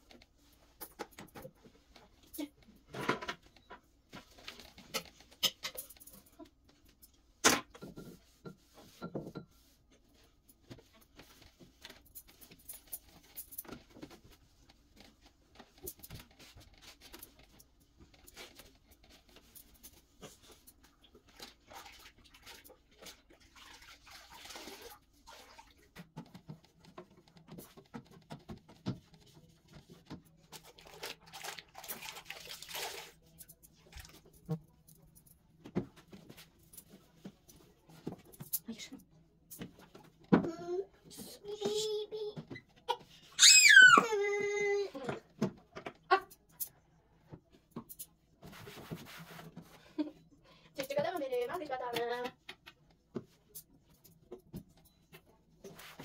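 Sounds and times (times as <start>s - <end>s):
household items clicking and knocking: 0.0s - 21.6s, 25.9s - 32.2s.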